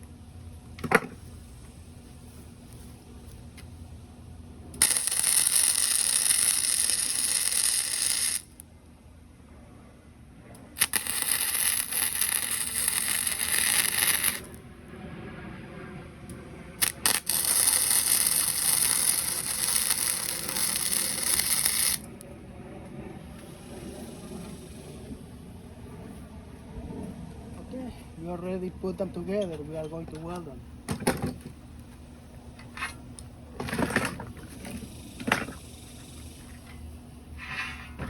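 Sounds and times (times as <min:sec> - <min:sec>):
arc welding crackling hiss: 0:04.8 - 0:08.6, 0:10.8 - 0:14.6, 0:16.8 - 0:22.2, 0:34.6 - 0:36.7.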